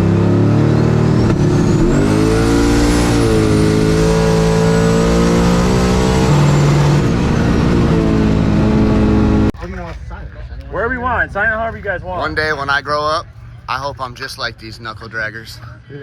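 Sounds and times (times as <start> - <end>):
drag car engine at high revs: 0.0 - 9.5.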